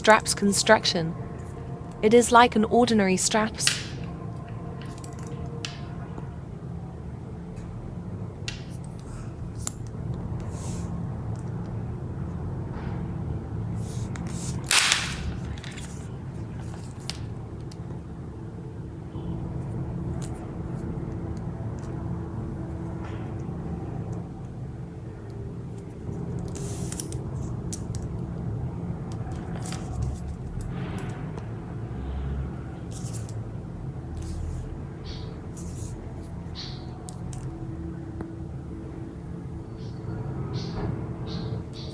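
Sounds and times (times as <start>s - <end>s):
low background rumble: 0.0s - 41.9s
handling clicks and rustles: 3.6s - 6.3s, 13.8s - 18.0s, 25.2s - 28.4s, 29.0s - 31.4s, 32.9s - 33.4s.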